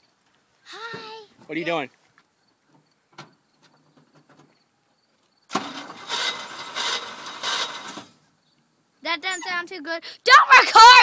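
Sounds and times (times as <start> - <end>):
car engine cranking and starting: 5.5 - 8.3.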